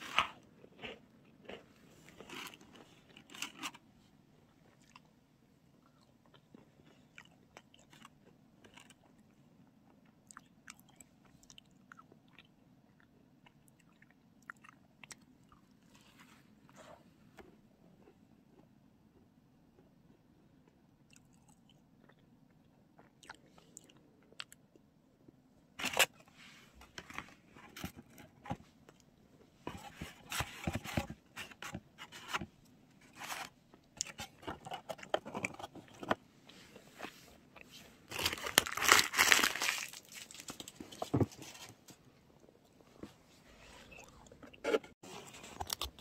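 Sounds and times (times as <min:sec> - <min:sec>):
crisp crunching: 0:37.6 - 0:41.6
biting and chewing: 0:43.9 - 0:46.0.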